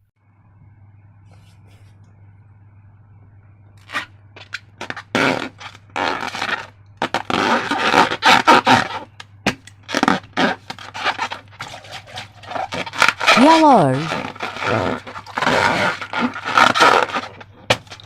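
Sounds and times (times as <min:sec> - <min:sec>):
slime squelching and crackling: 0:09.9 - 0:18.0.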